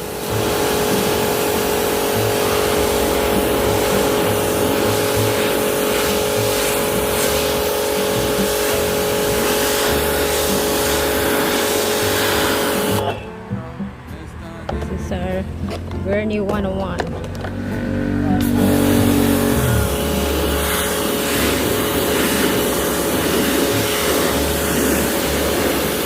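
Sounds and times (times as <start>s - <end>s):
water jet hissing against wheel: 0.0s - 13.2s, 18.4s - 26.0s
pump motor humming: 0.0s - 14.0s, 17.2s - 26.0s.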